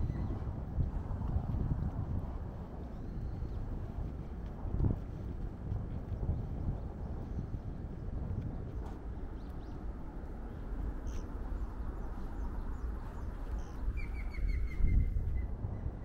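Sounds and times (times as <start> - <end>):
small birds chirping: 10.5 - 15.2.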